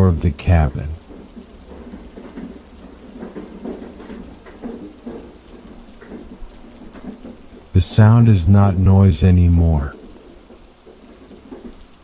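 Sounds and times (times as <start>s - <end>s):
steady low rumble: 0.0s - 1.0s
heavy rain: 0.0s - 12.0s.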